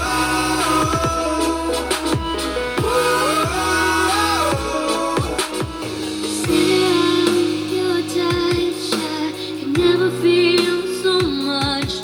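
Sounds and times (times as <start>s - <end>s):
electronic music with melody: 0.0s - 12.0s
deep kick drums: 0.8s - 1.4s.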